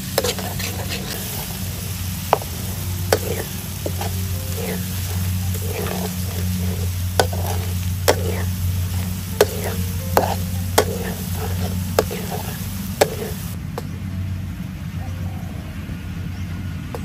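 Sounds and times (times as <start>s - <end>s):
garlic sizzling in oil: 0.0s - 13.6s
low steady hum: 0.0s - 17.0s
metal spatula clacking on pan: 3.1s - 8.5s, 9.4s - 13.3s.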